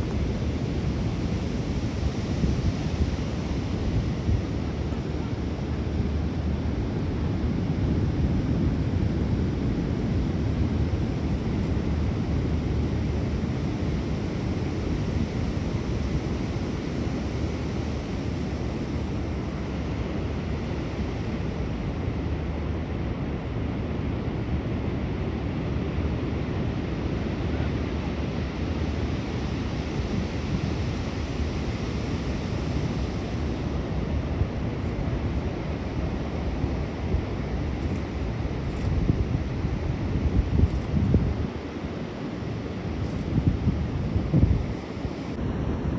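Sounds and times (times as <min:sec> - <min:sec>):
wind buffeting microphone: 0:27.5 - 0:45.9.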